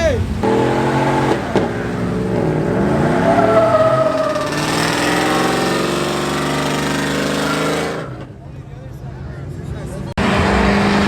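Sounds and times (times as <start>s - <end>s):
engine revving: 0.4s - 8.2s, 10.2s - 11.0s.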